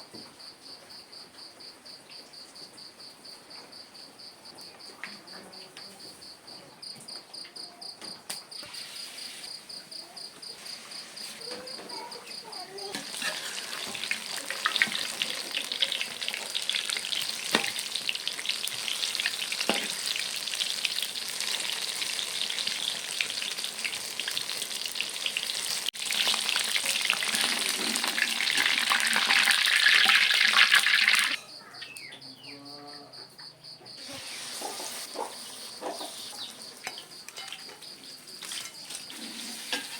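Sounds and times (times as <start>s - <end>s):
crickets chirping: 0.0s - 19.6s, 31.0s - 39.9s
bananas frying in hot oil: 12.4s - 31.4s, 34.0s - 39.9s.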